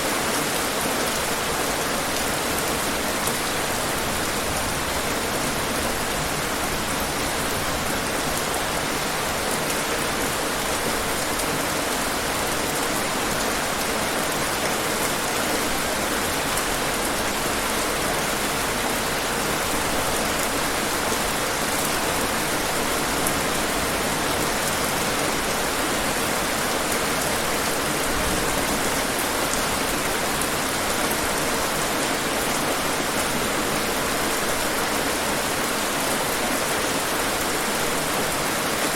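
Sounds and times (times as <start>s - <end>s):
rain on hard surfaces: 0.0s - 38.9s.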